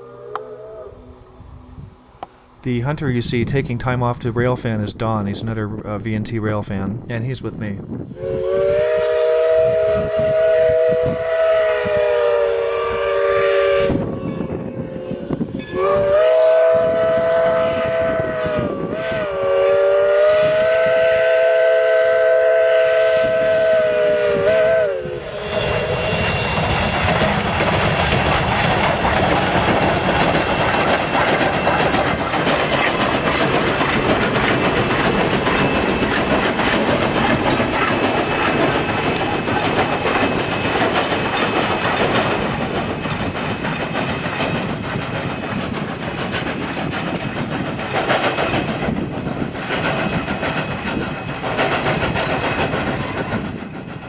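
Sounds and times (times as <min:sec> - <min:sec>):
train wheels rumbling on rail: 0:01.8 - 0:54.0
steam locomotive chime whistle: 0:08.1 - 0:26.9.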